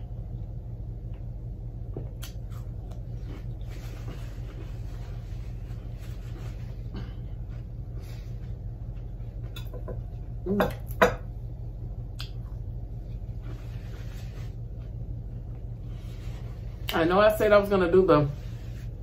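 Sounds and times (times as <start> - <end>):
low hum: 0.0 - 19.0
faint chewing: 1.9 - 7.7.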